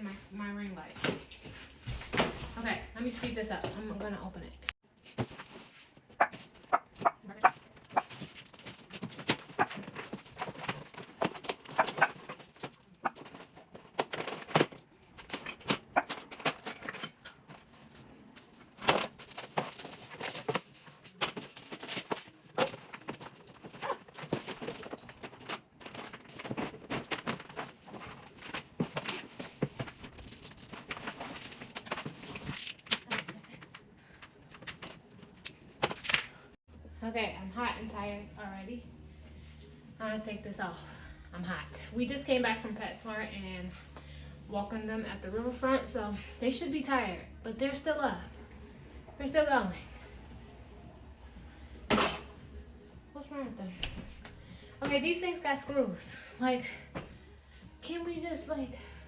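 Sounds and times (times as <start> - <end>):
cardboard and plastic rustling: 4.9 - 36.4.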